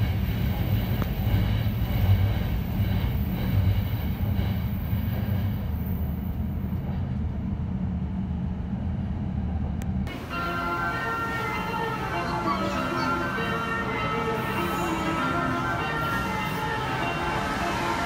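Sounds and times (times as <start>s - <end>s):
train wheels rumbling on rails: 0.0s - 10.3s.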